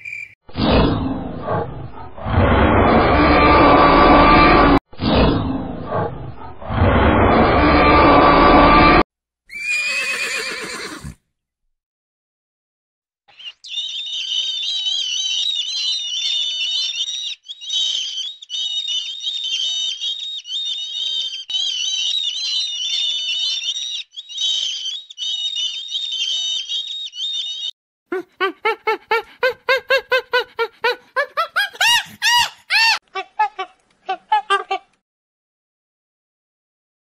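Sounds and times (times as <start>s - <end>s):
animal rapid repeated calls: 13.3s - 33.0s.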